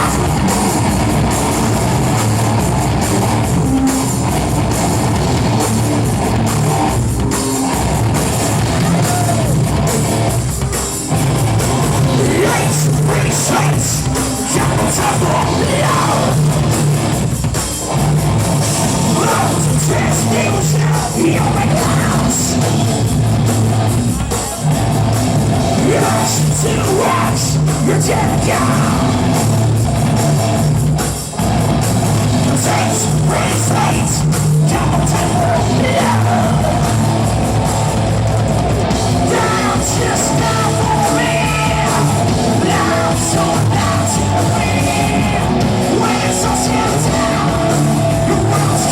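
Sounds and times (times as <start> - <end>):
person shouting singing: 0.0 - 0.8, 8.6 - 9.7, 12.0 - 16.5, 19.0 - 22.6, 25.7 - 29.4, 32.5 - 38.0, 39.2 - 48.9
hard rock band playing: 0.0 - 48.9.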